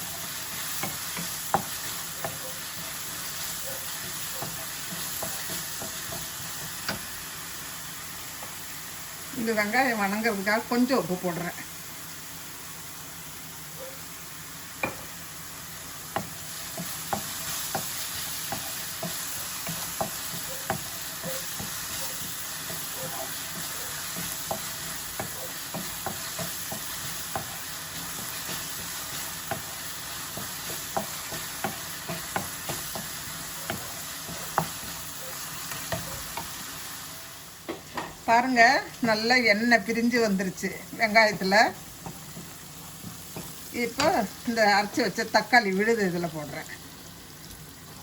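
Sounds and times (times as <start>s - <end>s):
onions sizzling in oil: 0.0s - 48.0s.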